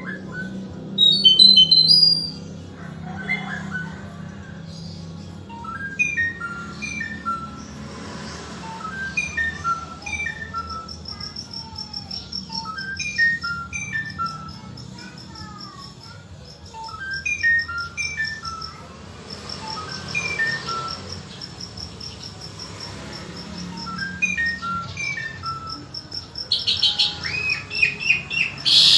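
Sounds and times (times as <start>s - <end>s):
songbird singing whistled notes: 0.0s - 28.9s
high insect-like trill: 3.6s - 28.9s.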